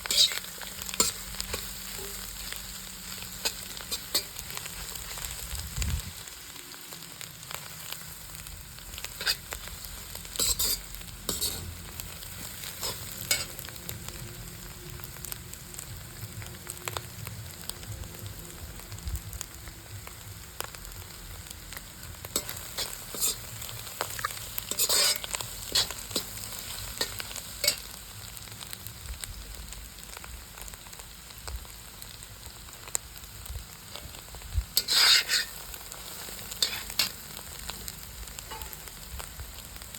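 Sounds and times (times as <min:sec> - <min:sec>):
spatula scraping a pan: 0:00.0 - 0:05.3, 0:09.0 - 0:09.6, 0:10.2 - 0:13.8, 0:22.3 - 0:27.9, 0:34.8 - 0:37.2, 0:38.4 - 0:38.9
food sizzling in a pan: 0:00.0 - 0:39.9.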